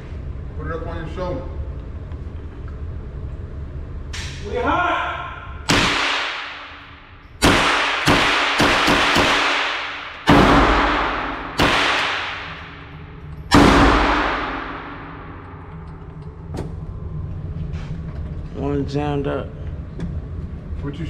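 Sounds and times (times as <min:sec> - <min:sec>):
echoing gunshots: 0:05.7 - 0:15.6.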